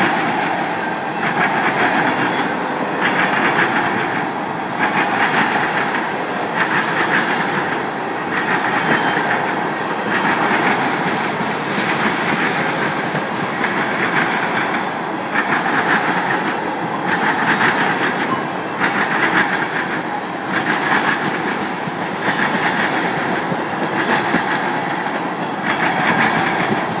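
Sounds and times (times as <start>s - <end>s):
train wheels clacking over rail joints: 0.0s - 27.0s.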